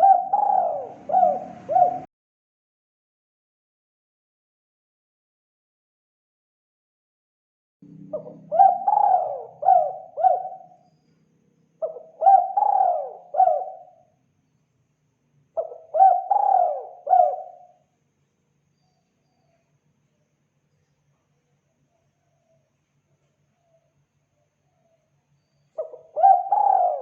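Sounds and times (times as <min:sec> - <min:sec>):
dove cooing: 0:00.0 - 0:02.1, 0:08.0 - 0:10.8, 0:11.8 - 0:14.1, 0:15.6 - 0:17.8, 0:25.8 - 0:27.0.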